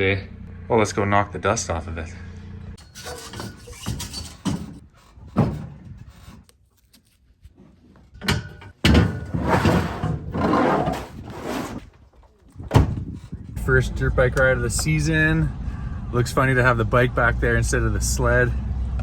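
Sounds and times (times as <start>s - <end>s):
loud rattling and scraping: 2.8s - 6.4s, 7.6s - 13.8s
sharp knocks and clunks: 3.3s - 6.4s, 8.2s - 11.2s, 12.6s - 13.3s.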